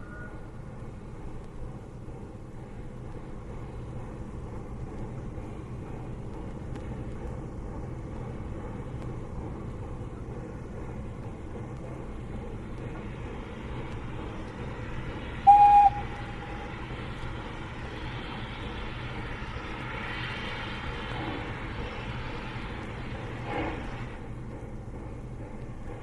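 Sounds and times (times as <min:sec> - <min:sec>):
steam locomotives rumbling: 0:00.0 - 0:26.0
steam whistle blast: 0:15.4 - 0:16.4.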